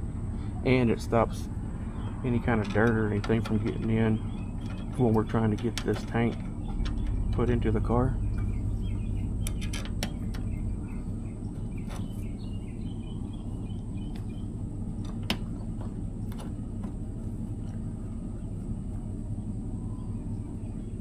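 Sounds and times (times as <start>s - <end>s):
low background hum: 0.0s - 21.0s
light clicks and taps: 2.5s - 7.6s
faint bird chirps: 6.4s - 15.1s, 17.8s - 21.0s.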